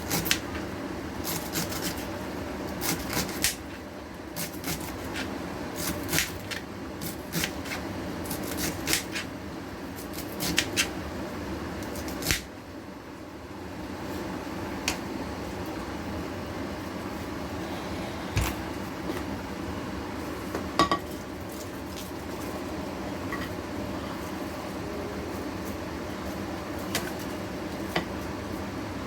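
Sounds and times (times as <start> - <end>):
steady low hum: 12.6 - 29.0.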